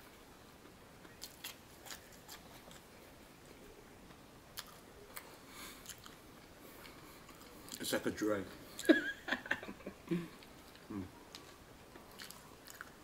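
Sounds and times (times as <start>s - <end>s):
faint wet chewing clicks: 0.6s - 2.9s, 4.6s - 7.9s, 10.4s - 13.0s.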